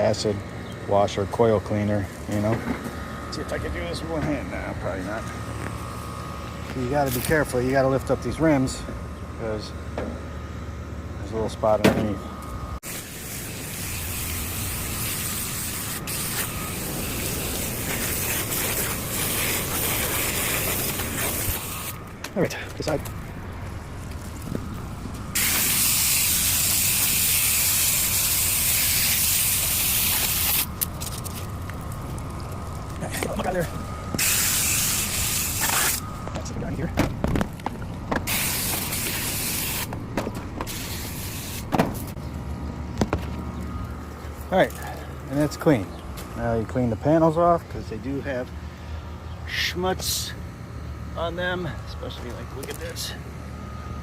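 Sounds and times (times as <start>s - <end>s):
garden hose spraying water: 12.8s - 22.0s, 25.3s - 30.8s, 33.0s - 36.0s, 38.3s - 39.9s, 40.7s - 41.7s.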